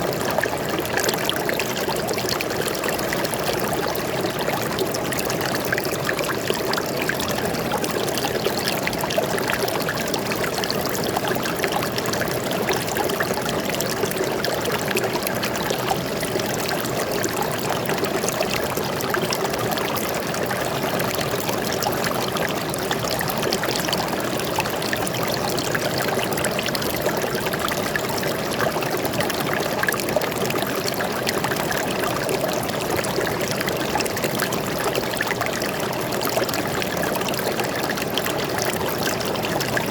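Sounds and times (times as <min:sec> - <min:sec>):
stream water flowing over rocks: 0:00.0 - 0:39.9.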